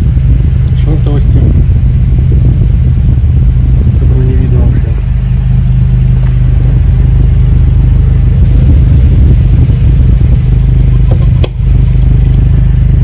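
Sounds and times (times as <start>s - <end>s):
engine and exhaust drone: 0.0s - 13.0s
road rumble: 0.0s - 13.0s.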